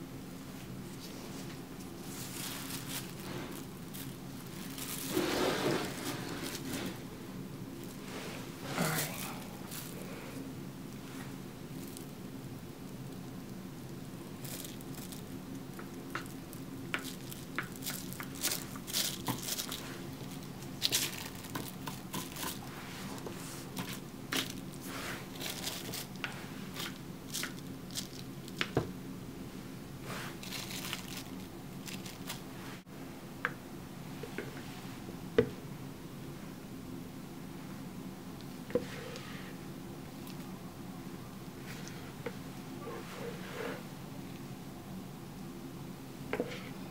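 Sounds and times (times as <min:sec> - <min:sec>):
steady low hum: 0:00.0 - 0:46.9
crinkling and rustling handling: 0:00.5 - 0:07.1, 0:07.7 - 0:12.2, 0:12.8 - 0:28.9, 0:30.0 - 0:32.8, 0:40.1 - 0:40.6.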